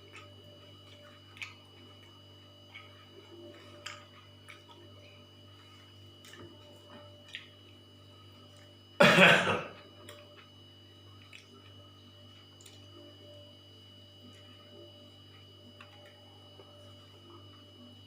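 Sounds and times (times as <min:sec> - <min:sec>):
small eating clicks: 0:00.0 - 0:05.0, 0:06.2 - 0:07.6, 0:11.2 - 0:11.8, 0:12.5 - 0:12.9
steady hum: 0:00.0 - 0:18.0
person coughing: 0:09.0 - 0:09.8.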